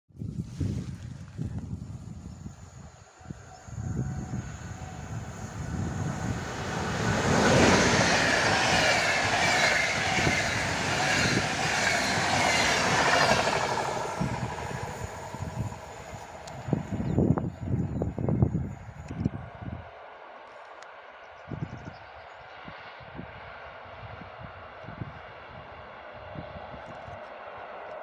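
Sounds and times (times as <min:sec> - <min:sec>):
wheels rumbling on rail: 0:00.2 - 0:21.0
train passing: 0:01.2 - 0:21.2, 0:22.5 - 0:28.0.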